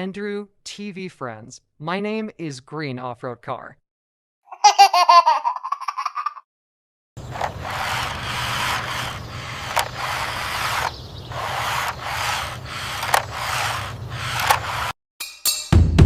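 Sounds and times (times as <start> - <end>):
sharp clicks: 7.2 - 15.0
toy car rolling over rough surface: 7.2 - 15.0.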